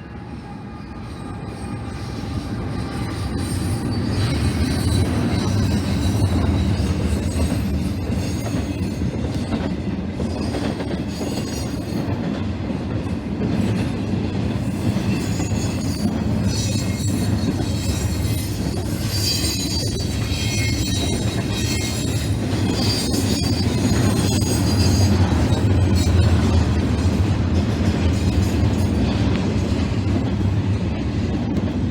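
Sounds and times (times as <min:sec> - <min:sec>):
train rumbling past: 0:00.0 - 0:31.9
high wheel squeal: 0:00.1 - 0:08.5, 0:14.8 - 0:26.6.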